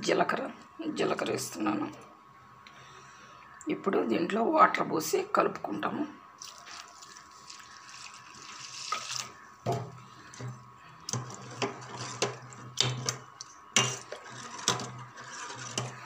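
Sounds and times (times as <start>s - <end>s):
water poured into a bowl: 6.4s - 9.4s
batter stirred with scraping: 6.7s - 16.0s.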